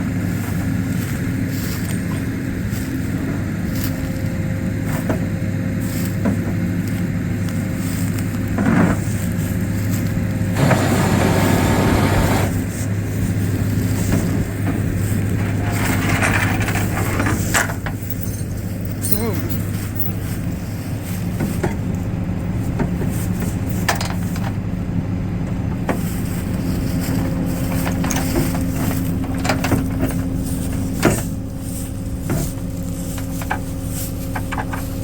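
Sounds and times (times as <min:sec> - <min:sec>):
vehicle engine under load: 0:00.0 - 0:35.0
rushing noise: 0:10.6 - 0:12.7.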